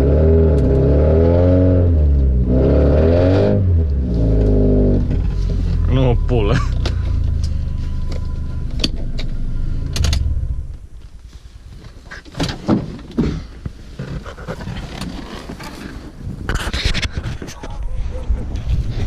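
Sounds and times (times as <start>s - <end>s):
car exhaust idling: 3.8s - 12.2s.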